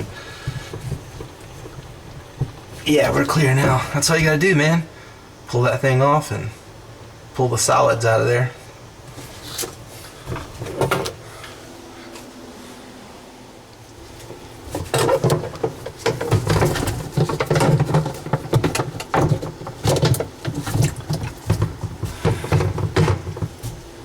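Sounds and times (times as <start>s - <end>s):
parts rattling in dishwasher tub: 0.0s - 4.4s, 9.5s - 11.2s, 14.1s - 23.9s.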